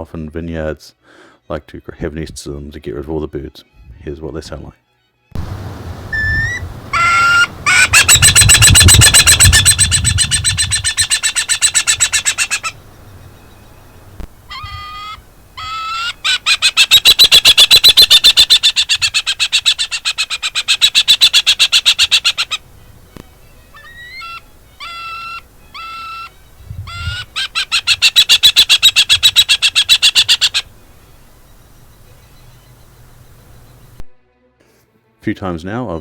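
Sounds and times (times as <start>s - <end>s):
falcon harsh chattering call: 6.0s - 34.0s.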